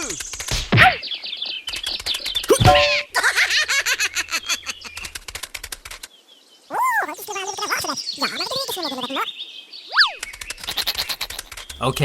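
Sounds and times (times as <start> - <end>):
chirpy giggly cartoon voice: 0.8 - 5.1, 6.7 - 9.3, 9.9 - 11.7
fast short chirps: 9.9 - 12.0.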